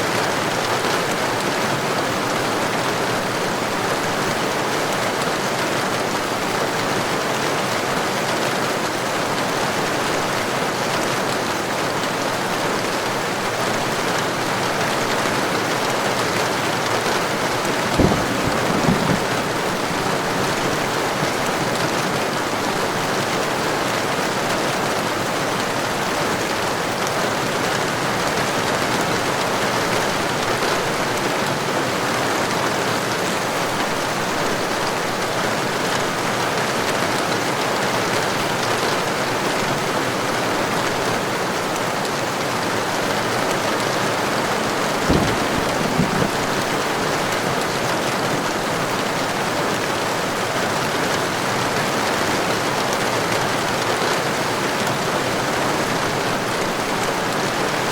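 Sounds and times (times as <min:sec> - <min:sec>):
heavy rain falling: 0:00.0 - 0:57.9
low thumps: 0:17.9 - 0:20.7, 0:45.0 - 0:47.4.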